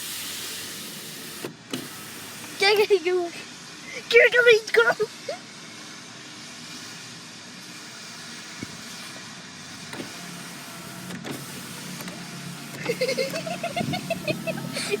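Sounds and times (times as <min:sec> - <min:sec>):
car noise: 0:09.8 - 0:15.0.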